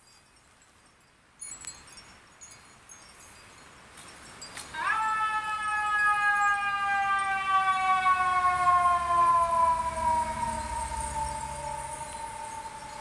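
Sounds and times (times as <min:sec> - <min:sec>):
siren wailing: 0:04.8 - 0:13.0.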